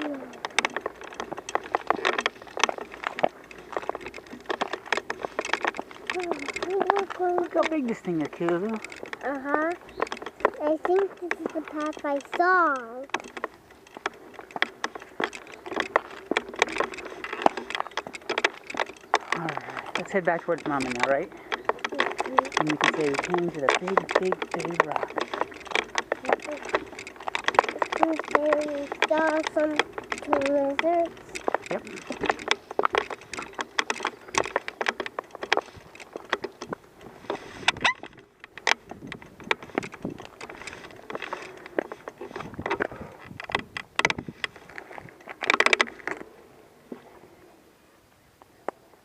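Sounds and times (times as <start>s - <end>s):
footsteps on dry leaves: 0.0s - 10.6s
twigs snapping: 13.0s - 46.3s
short squeak: 37.8s - 38.1s.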